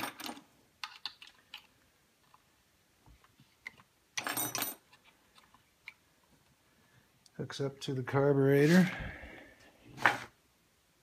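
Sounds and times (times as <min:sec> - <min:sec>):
rattle of metal parts: 0:00.0 - 0:01.6, 0:04.2 - 0:05.0.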